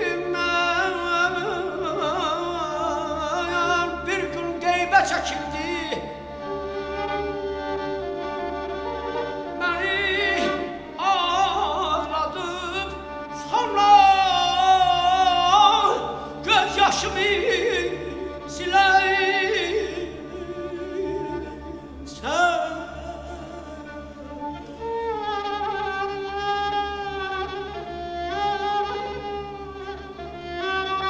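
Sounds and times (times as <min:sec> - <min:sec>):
person singing ornamented phrases: 0:00.0 - 0:06.2, 0:09.6 - 0:24.2
sustained orchestral strings: 0:00.0 - 0:31.0.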